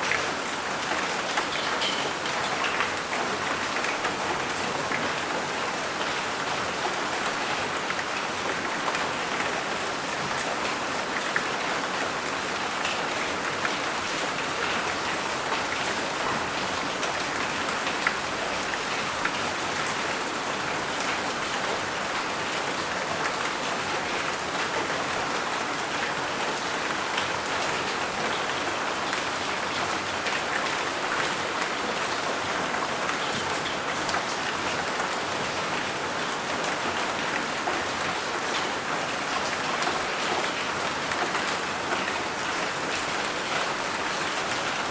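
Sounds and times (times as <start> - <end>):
sharp ticks of raindrops: 0.0 - 5.3
steady rain falling: 0.0 - 44.9.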